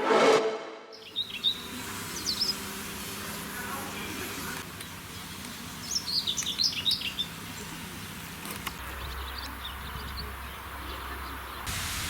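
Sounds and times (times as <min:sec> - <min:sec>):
small songbird chirping: 0:01.0 - 0:02.6, 0:04.8 - 0:07.7
steady outdoor hiss: 0:01.0 - 0:12.0.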